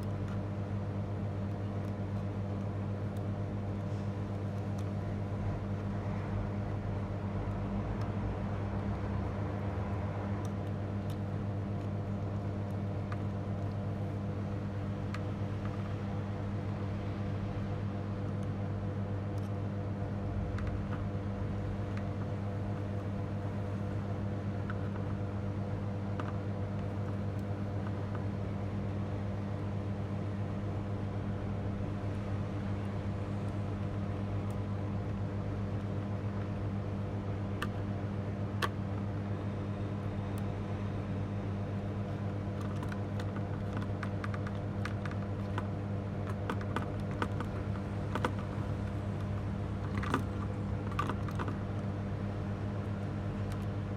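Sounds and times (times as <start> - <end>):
low electrical hum: 0.0 - 53.9
light clicks and taps: 42.2 - 51.9.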